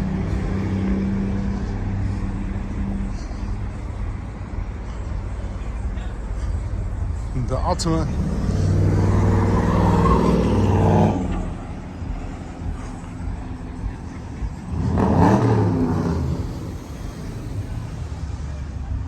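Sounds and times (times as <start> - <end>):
car engine running loudly: 0.0 - 19.0
engine rising and falling pitch: 14.6 - 18.2.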